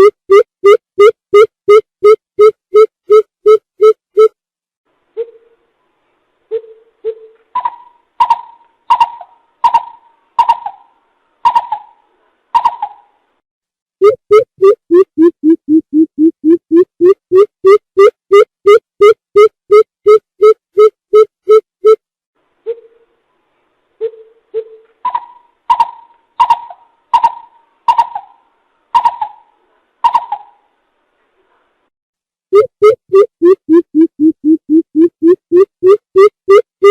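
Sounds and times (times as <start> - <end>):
bird hollow hooting calls: 7.6 - 12.0, 24.1 - 28.4, 29.0 - 30.6.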